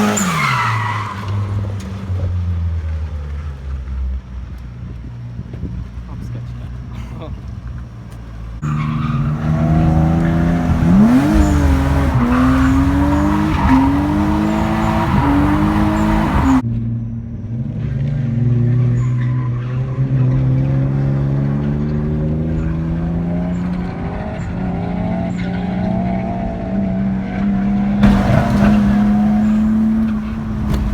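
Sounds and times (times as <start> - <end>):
tyres squealing: 0.0 - 2.1, 8.6 - 16.6, 27.8 - 30.9
car engine revving: 0.0 - 3.8, 8.5 - 16.6, 18.3 - 30.9.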